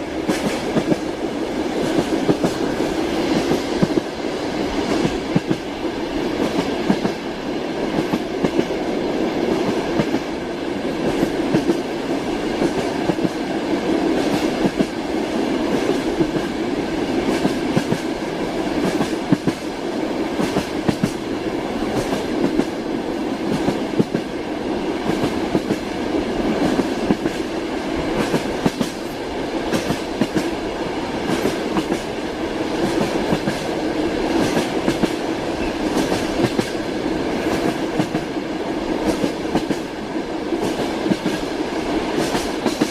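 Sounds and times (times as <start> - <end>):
rolling rumble of railway carriage: 0.0 - 42.9
train wheels clacking over rail joints: 18.8 - 19.6, 28.2 - 30.6, 34.3 - 36.8.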